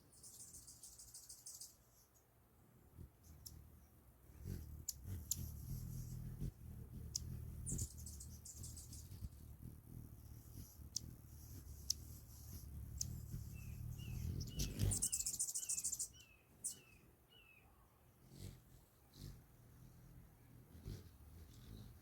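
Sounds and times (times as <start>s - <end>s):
hummingbird wing buzzing: 2.8s - 16.8s, 18.1s - 22.0s
hummingbird chip notes: 3.2s - 17.0s.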